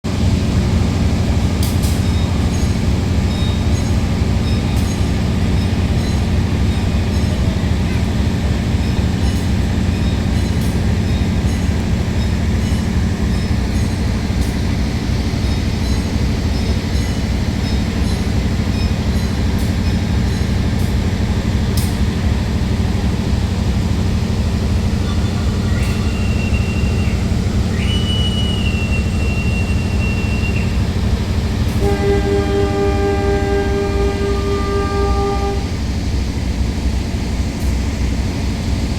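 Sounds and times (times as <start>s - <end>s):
diesel locomotive rumbling: 0.0s - 38.9s
locomotive horn blasts: 31.7s - 35.8s.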